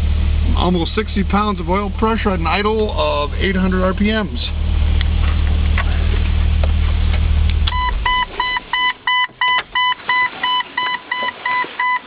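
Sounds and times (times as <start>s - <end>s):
car engine idling: 0.0s - 11.8s
rapid electronic warning beeps: 7.7s - 12.0s.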